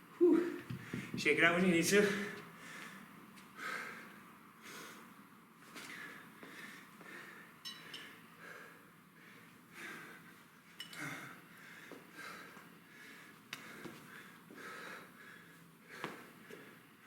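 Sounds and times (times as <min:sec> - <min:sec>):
man breathing hard: 0:00.2 - 0:01.2, 0:02.0 - 0:05.2, 0:05.8 - 0:17.0
light metallic clink: 0:07.6 - 0:08.1.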